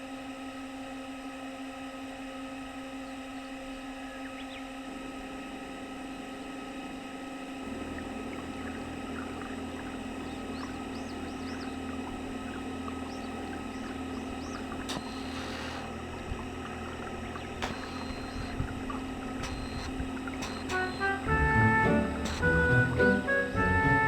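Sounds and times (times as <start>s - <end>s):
model boat motor humming: 0.0s - 24.0s
high bird chirps: 7.8s - 21.2s
sharp click: 13.1s - 16.5s, 17.1s - 21.3s, 22.2s - 23.0s.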